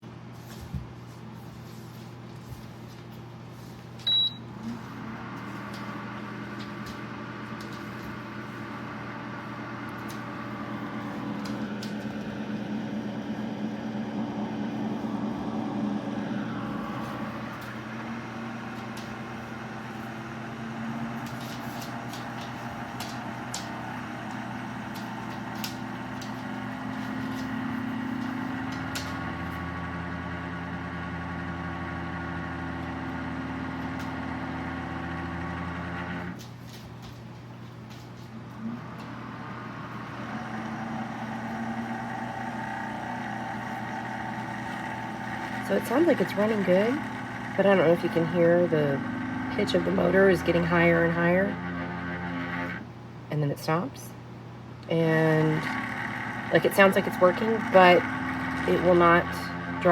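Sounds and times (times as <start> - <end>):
dehumidifier motor humming: 0.0 - 59.9.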